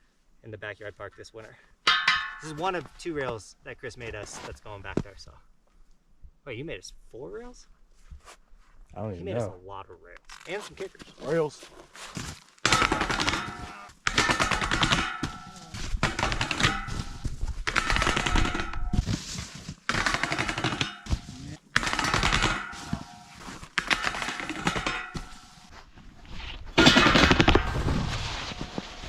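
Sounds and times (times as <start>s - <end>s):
snowboards clattering on metal rail: 1.9s - 2.8s, 12.7s - 19.0s, 19.9s - 25.7s.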